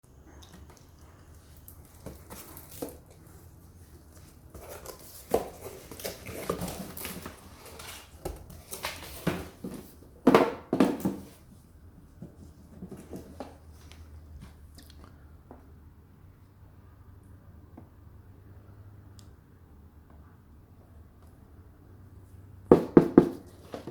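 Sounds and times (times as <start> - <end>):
packaging crinkling and rustling: 4.0 - 10.0.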